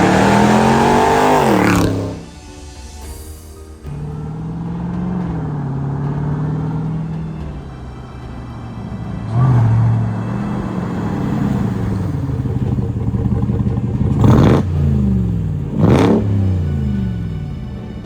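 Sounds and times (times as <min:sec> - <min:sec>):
loud truck engine under throttle: 0:00.0 - 0:02.3, 0:08.2 - 0:17.7.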